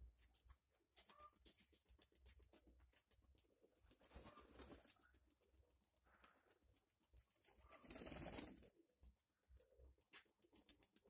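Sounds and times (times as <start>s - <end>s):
pigeon calls: 4.1s - 5.2s, 7.5s - 8.7s.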